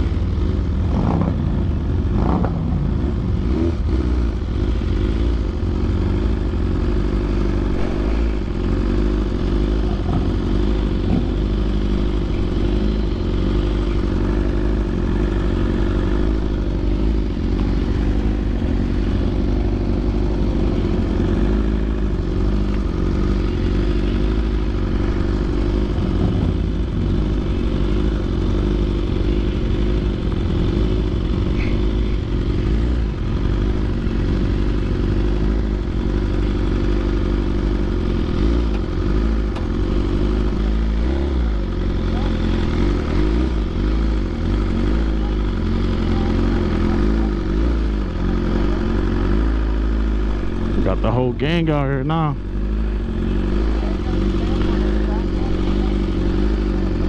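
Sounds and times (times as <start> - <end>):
engine clatter: 0.0 - 57.0
motorcycle engine running: 0.0 - 57.0.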